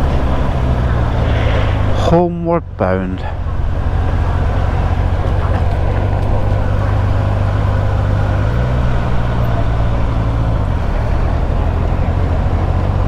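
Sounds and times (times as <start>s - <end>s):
motorcycle engine running: 1.8s - 13.0s.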